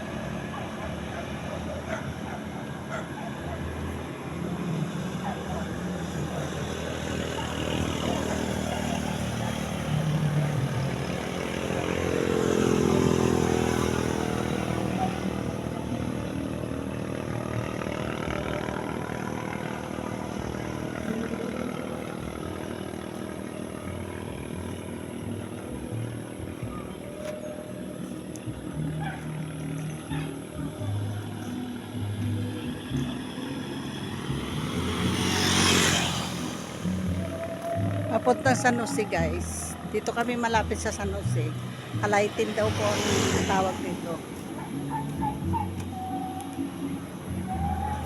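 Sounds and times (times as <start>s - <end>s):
vehicle engine passing by: 0.0s - 48.0s.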